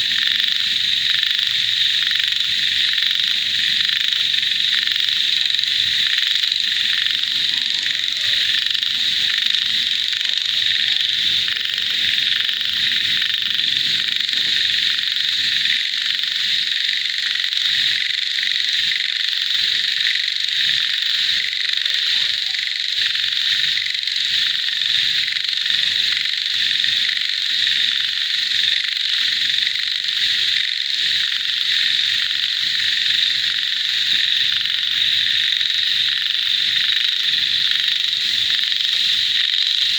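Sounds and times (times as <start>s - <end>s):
frogs trilling: 0.0s - 39.9s
lower frog calls: 0.0s - 39.9s.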